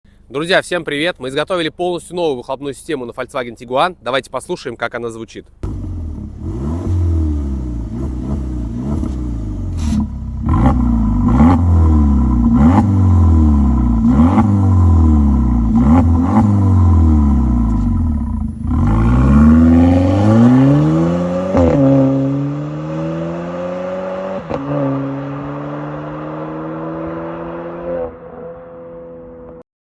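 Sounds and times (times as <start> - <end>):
car engine revving: 5.6 - 29.6.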